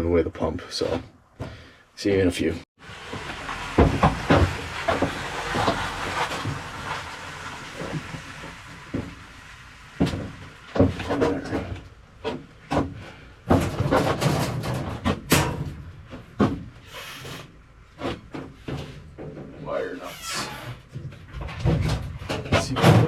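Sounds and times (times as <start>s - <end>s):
hard objects knocking and scraping: 3.1s - 7.0s, 10.0s - 16.8s.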